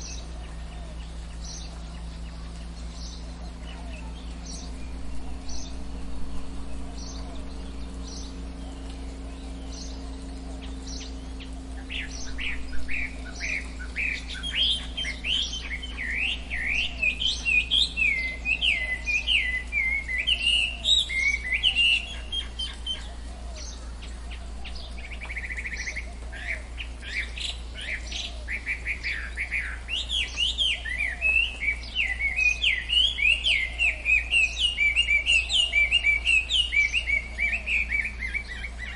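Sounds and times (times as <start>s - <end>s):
birds chirping: 0.0s - 38.9s
faint low hum: 0.0s - 38.9s.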